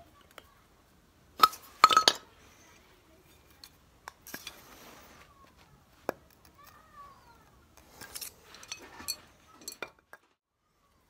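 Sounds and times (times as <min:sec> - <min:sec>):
metal objects clinking: 0:01.4 - 0:02.3, 0:07.8 - 0:10.4.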